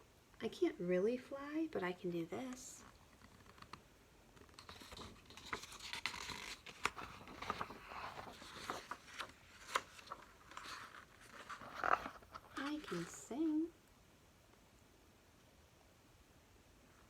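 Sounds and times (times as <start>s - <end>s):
paper pages rustling: 2.8s - 13.6s.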